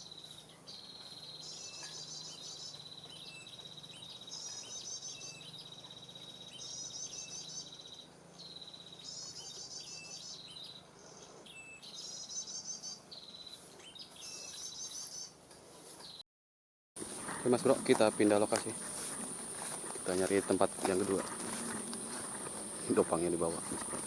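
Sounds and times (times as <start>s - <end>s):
cricket trilling: 17.0s - 24.0s.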